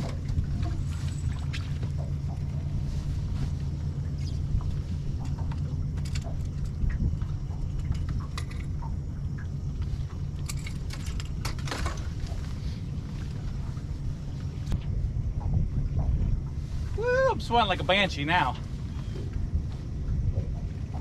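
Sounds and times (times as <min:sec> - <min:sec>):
steady low rumble: 0:00.0 - 0:21.0
fishing tackle clicks and rattles: 0:05.2 - 0:07.0, 0:07.8 - 0:08.9, 0:10.4 - 0:12.1.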